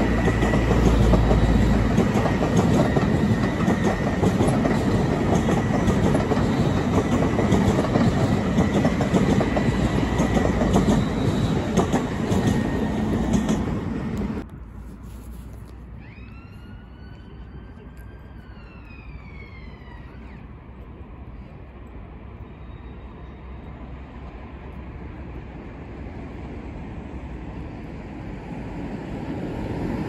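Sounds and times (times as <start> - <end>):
wheels clicking over rail joints: 0.0 - 14.4
train rumbling: 0.0 - 30.0.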